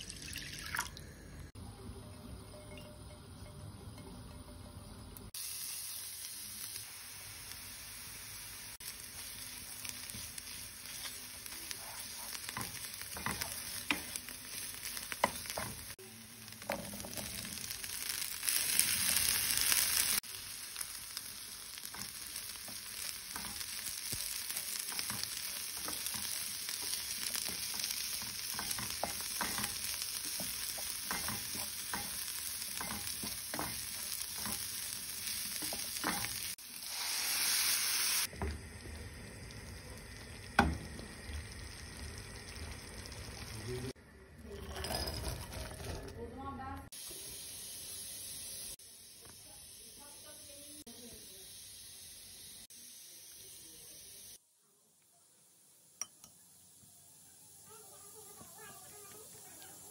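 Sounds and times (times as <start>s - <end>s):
chickpeas sizzling: 0.0s - 59.9s
paste sizzling in oil: 5.3s - 44.0s, 46.9s - 54.4s, 55.6s - 59.9s.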